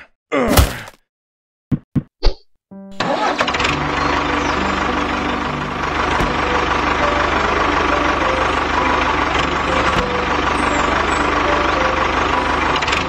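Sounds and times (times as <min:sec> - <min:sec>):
tractor engine idling: 0:03.0 - 0:13.0.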